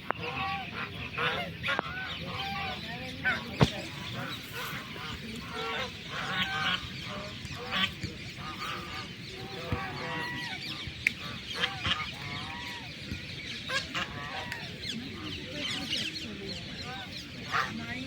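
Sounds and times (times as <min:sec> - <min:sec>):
waterfowl calling: 0:00.0 - 0:12.9.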